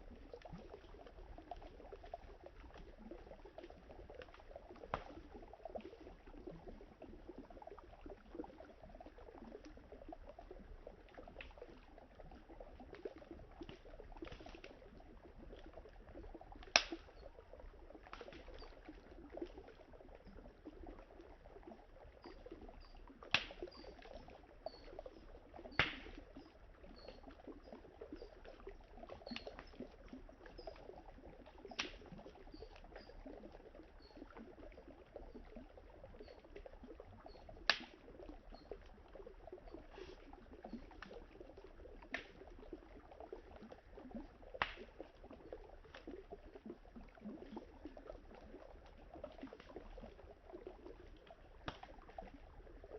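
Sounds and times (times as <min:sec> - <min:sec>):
campfire crackling and popping: 0:00.1 - 0:07.7, 0:12.5 - 0:19.8, 0:22.2 - 0:26.4, 0:30.7 - 0:32.8, 0:37.6 - 0:38.2, 0:40.6 - 0:42.8, 0:44.2 - 0:46.6, 0:51.5 - 0:52.2.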